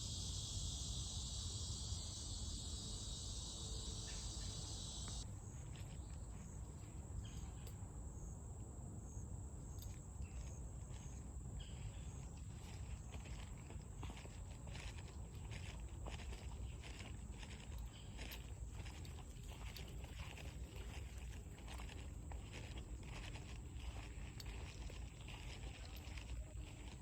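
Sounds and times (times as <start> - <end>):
insects shrilling in chorus: 0.0 - 5.2
steady high insect note: 0.0 - 5.2.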